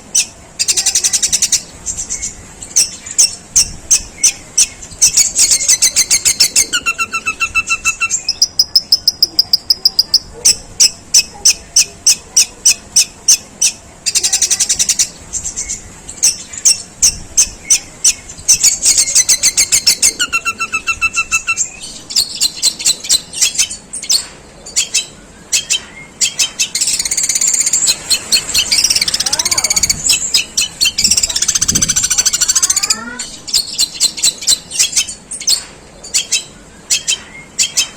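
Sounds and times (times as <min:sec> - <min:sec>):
shrike chattering: 0:00.0 - 0:37.9
bird whistle: 0:24.8 - 0:32.9
harsh bird rasp: 0:26.2 - 0:35.2.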